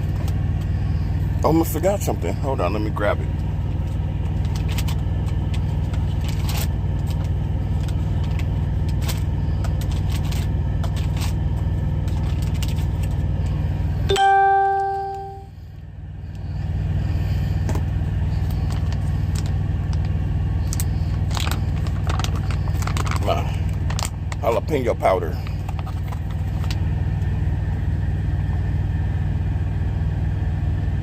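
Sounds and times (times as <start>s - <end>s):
idling truck engine hum: 0.0s - 31.0s
bell-like ding: 14.1s - 15.5s.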